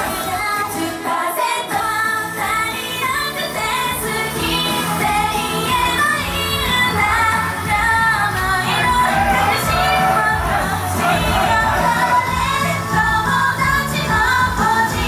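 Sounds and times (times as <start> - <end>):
female voices singing pop: 0.0 - 15.0
backing track with steady beat: 3.4 - 15.0.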